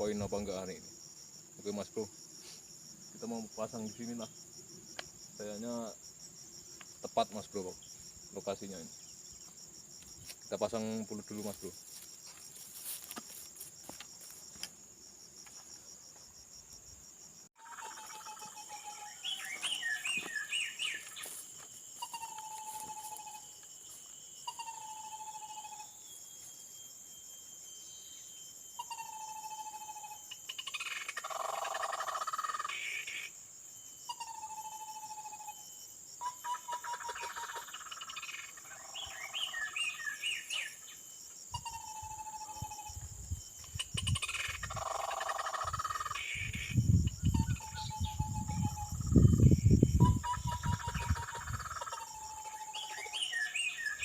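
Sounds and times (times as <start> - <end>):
high-pitched insect shrill: 17.6 - 54.0.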